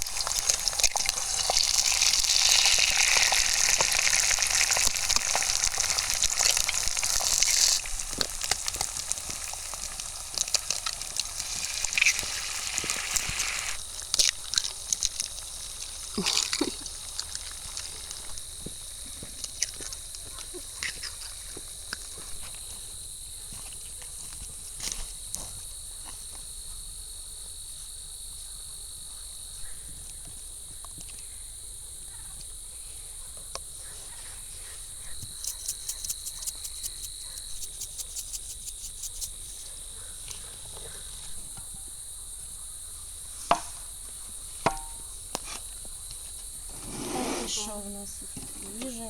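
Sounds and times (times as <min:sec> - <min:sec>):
crickets chirring: 0:00.0 - 0:49.0
rapid regular chirping: 0:35.1 - 0:39.8.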